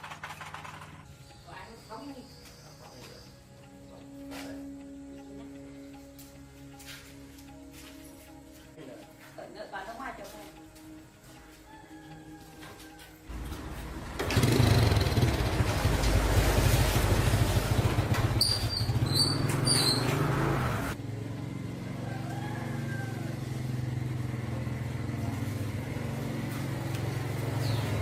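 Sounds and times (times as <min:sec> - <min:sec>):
small motorcycle engine running: 0:13.3 - 0:28.0
high chirps: 0:18.4 - 0:20.2.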